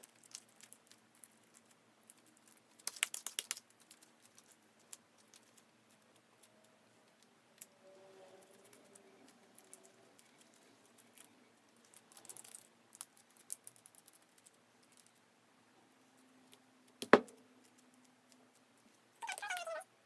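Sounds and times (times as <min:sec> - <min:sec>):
slime clicking and crackling: 0:00.0 - 0:06.5.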